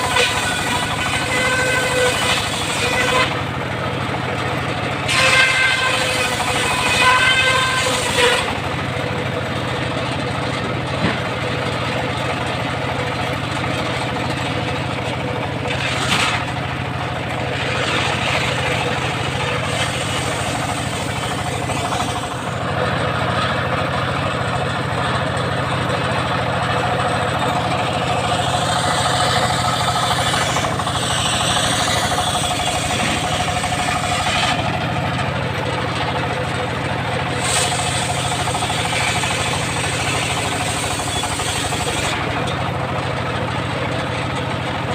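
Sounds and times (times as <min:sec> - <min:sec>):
circular sawmill running: 0:00.0 - 0:44.9.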